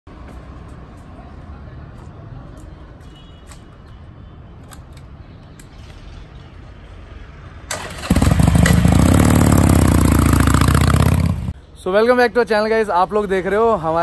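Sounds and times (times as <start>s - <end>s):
motorcycle engine starting and running: 7.7s - 11.5s.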